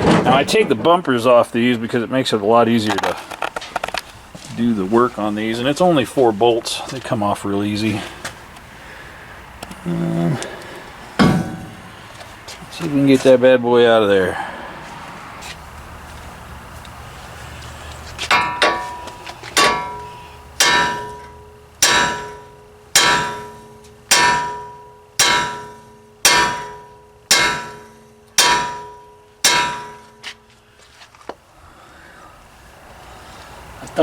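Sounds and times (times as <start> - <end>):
hammer pounding on metal: 11.2 - 12.0, 18.3 - 30.4.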